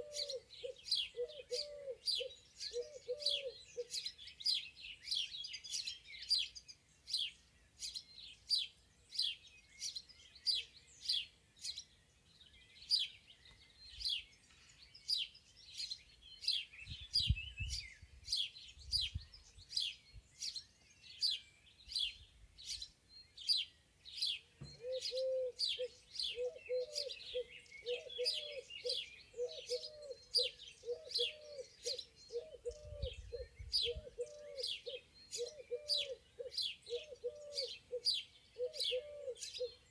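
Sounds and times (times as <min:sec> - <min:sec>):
low cooing call: 0:00.0 - 0:04.0, 0:24.7 - 0:39.8
songbirds chirping: 0:00.0 - 0:39.9.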